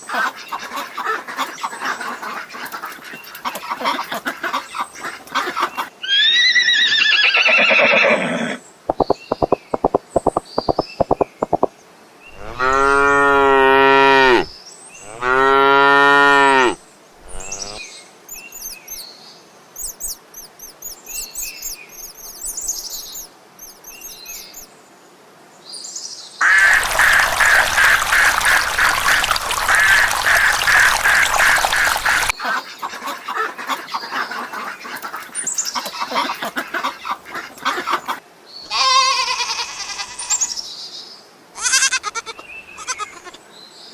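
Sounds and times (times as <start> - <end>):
birds chirping and calling: 8.9 - 11.7, 12.3 - 13.0, 17.2 - 19.0, 19.8 - 24.7, 26.4 - 38.2
cow mooing: 12.4 - 14.5, 15.1 - 17.8.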